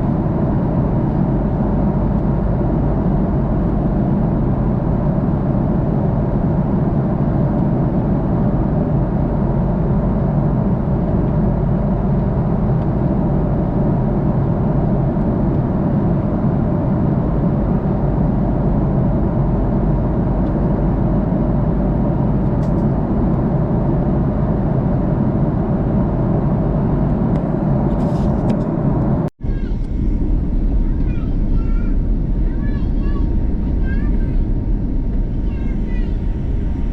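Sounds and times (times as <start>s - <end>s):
airliner cabin roar: 0.0s - 36.9s.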